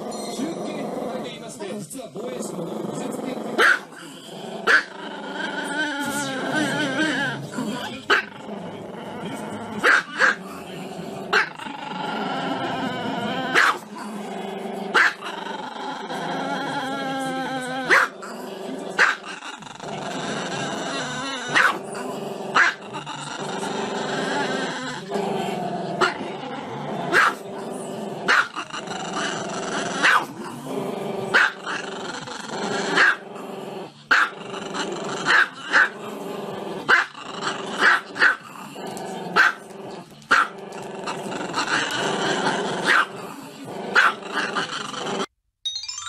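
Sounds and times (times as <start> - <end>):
dog growling: 0.0 - 45.3
dog barking: 3.6 - 3.9, 4.7 - 4.9, 9.8 - 10.4, 13.6 - 13.8, 14.9 - 15.2, 17.9 - 18.1, 19.0 - 19.3, 21.5 - 21.8, 22.6 - 22.8, 27.1 - 27.4, 28.3 - 28.5, 30.0 - 30.3, 31.3 - 31.6, 33.0 - 33.2, 34.1 - 34.4, 35.3 - 36.0, 36.9 - 37.1, 37.8 - 38.4, 39.4 - 39.6, 40.3 - 40.6, 42.8 - 43.1, 44.0 - 44.2.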